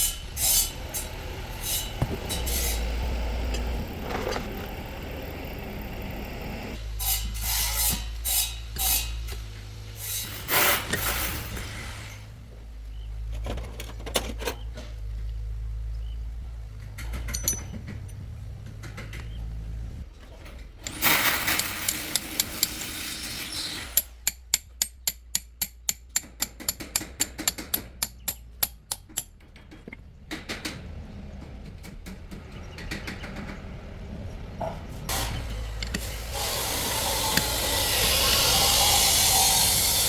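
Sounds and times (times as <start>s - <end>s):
rough tool noise: 0.0s - 12.4s, 20.8s - 25.2s, 35.0s - 40.0s
sharp evenly spaced knocks: 24.0s - 30.9s
steady hiss: 35.1s - 40.0s.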